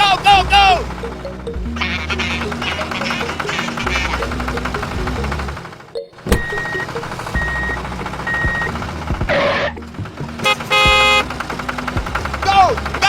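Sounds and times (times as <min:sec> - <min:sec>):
low engine rumble: 0:00.0 - 0:13.0
truck reversing alarm beeping: 0:00.0 - 0:13.0.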